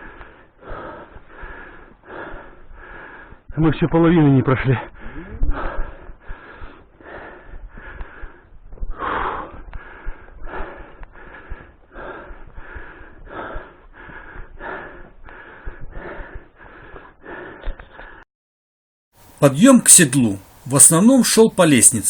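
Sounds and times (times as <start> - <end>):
person breathing hard: 0.0 - 3.5, 4.9 - 18.2.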